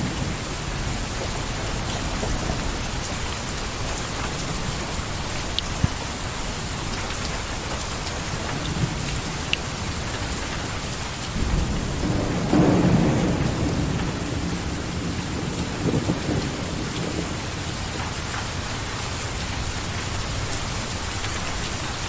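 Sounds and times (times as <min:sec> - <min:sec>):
low rumble of thunder: 0:00.0 - 0:06.1, 0:08.2 - 0:22.0
heavy rain falling: 0:00.0 - 0:22.0
sharp drip ticks: 0:02.6 - 0:06.1, 0:06.8 - 0:10.7.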